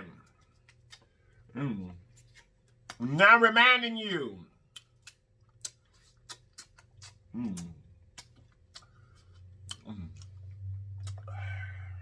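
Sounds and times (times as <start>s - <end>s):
wet mouth clicks and smacks: 4.7s - 11.3s.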